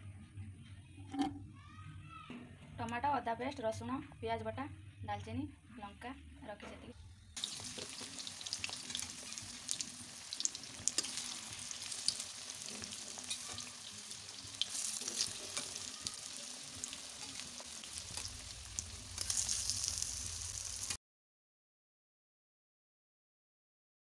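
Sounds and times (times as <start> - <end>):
food sizzling in hot oil: 7.4 - 21.0.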